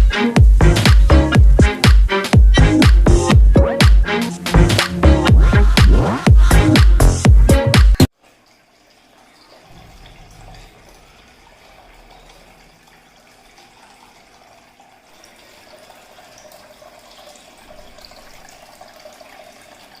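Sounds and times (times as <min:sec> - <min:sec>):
water trickling down a fountain: 0:08.1 - 0:20.0.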